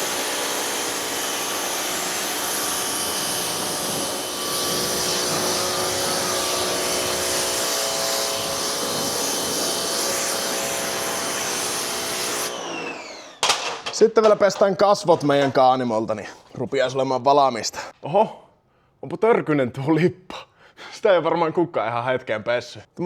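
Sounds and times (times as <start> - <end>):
pressure washer motor whine: 0.0 - 13.9
water spray hissing: 3.1 - 11.8.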